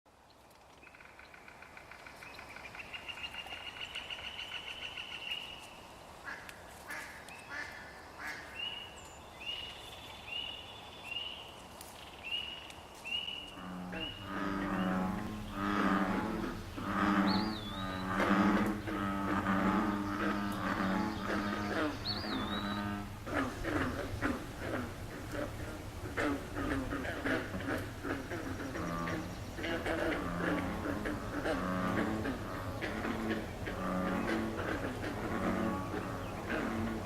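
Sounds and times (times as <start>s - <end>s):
bullfrogs deep low calls: 13.6s - 37.0s.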